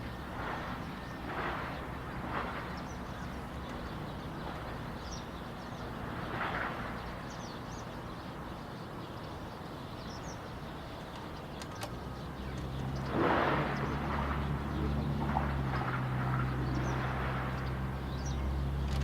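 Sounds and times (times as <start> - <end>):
distant diesel locomotives rumbling: 0.0 - 19.0.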